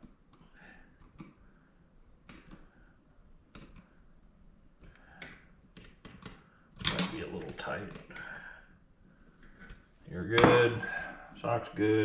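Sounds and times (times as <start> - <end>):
clicks and knocks of parts handled: 4.8 - 8.3.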